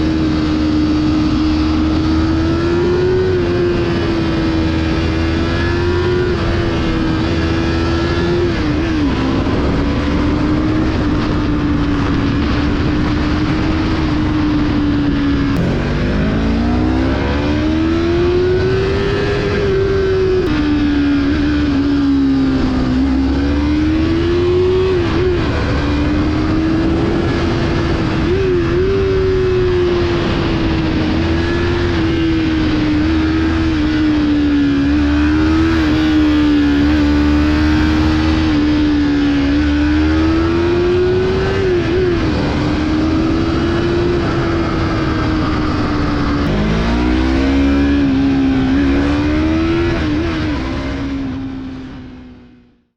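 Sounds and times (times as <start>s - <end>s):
wind rush: 0.0s - 52.4s
motorcycle engine revving: 0.0s - 52.9s.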